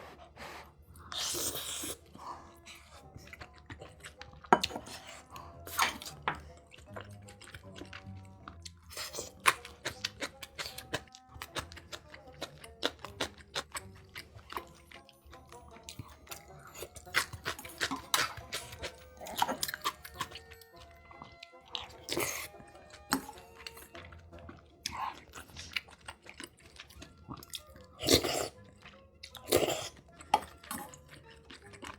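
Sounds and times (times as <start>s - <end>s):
background music: 0.0s - 31.9s
person chewing crunchy food: 0.0s - 31.9s.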